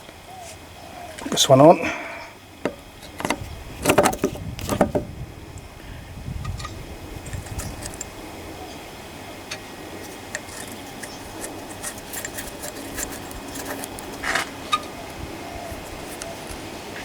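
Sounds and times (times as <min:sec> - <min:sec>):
metal part scraping: 0:02.7 - 0:05.0, 0:06.5 - 0:08.2, 0:09.5 - 0:14.9
small engine parts clicking: 0:06.5 - 0:08.2, 0:09.5 - 0:14.9.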